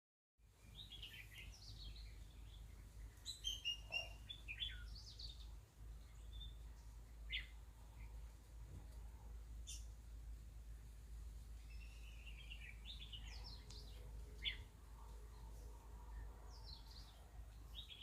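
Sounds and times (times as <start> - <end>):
birds chirping: 0.5 - 8.6, 9.6 - 10.0, 10.7 - 18.0
faint low hum: 4.0 - 18.0.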